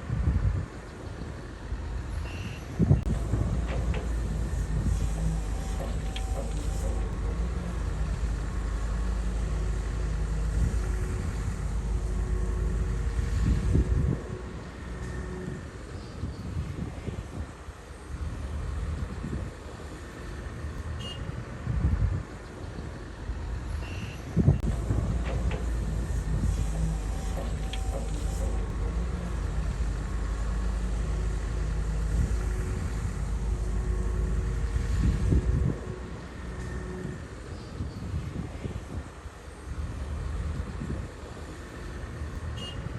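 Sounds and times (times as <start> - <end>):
bulldozer diesel engine running: 3.1 - 15.9, 24.6 - 37.5.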